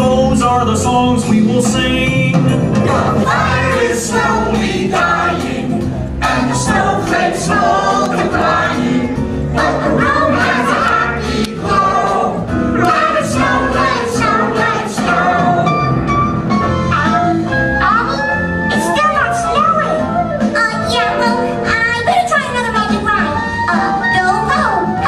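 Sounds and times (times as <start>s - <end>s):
instrumental backing: 0.0s - 25.0s
group of voices singing: 2.8s - 16.0s.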